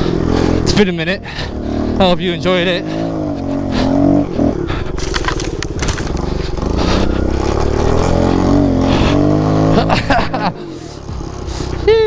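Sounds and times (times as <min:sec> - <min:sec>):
crunching and scraping: 0:04.9 - 0:08.0
small motorcycle engine running: 0:04.9 - 0:08.8.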